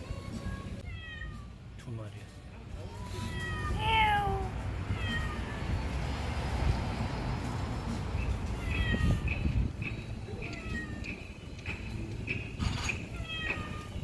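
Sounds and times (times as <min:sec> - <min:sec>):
cat meowing: 0:03.2 - 0:05.8, 0:08.6 - 0:09.3, 0:13.1 - 0:14.0.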